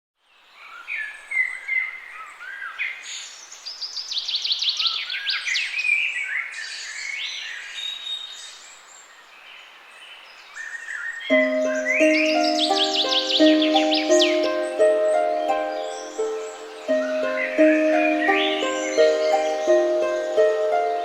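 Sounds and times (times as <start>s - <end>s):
songbirds singing and calling: 0.2s - 21.0s
soft steady hiss: 8.4s - 21.0s.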